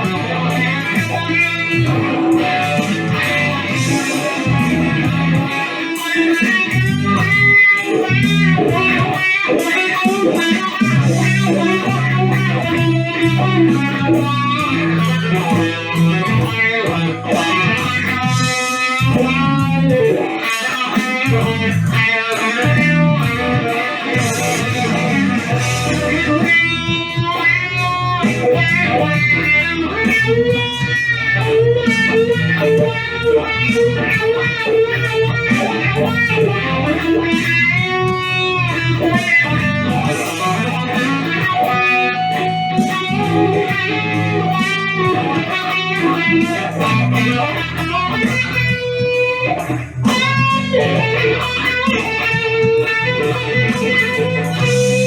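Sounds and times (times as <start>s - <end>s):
electric guitar with wah pedal: 0.0s - 55.0s.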